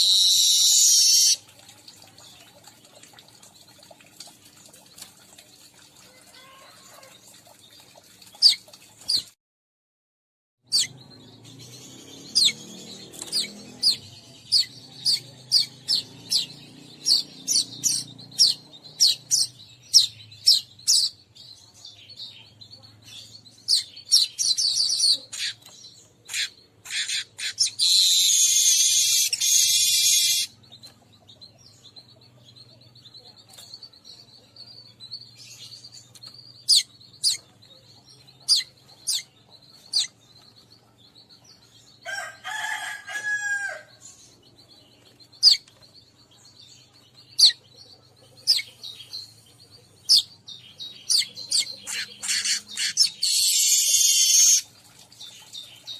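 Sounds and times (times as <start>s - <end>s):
bird chirps: 0.0s - 1.4s, 10.7s - 42.3s, 44.0s - 55.9s
buzzing bird chatter: 51.0s - 54.7s
drawn-out bird call: 51.1s - 54.7s.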